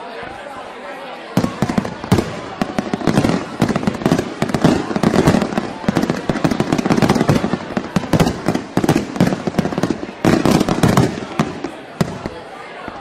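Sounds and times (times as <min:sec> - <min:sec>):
fireworks bangs and crackles: 0:01.3 - 0:13.0.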